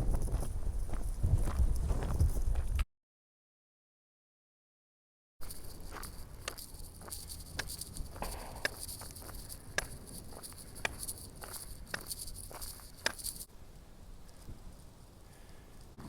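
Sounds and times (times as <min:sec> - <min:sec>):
footsteps walking: 0:00.0 - 0:02.8, 0:05.4 - 0:13.5
high-pitched insect chorus: 0:05.4 - 0:13.5.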